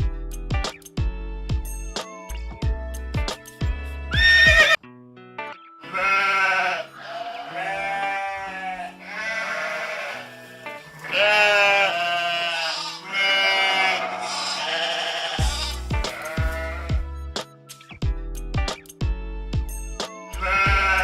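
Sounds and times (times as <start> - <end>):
background music: 0.0 - 21.0
sheep bleating: 4.1 - 4.8, 5.8 - 17.0, 20.4 - 21.0.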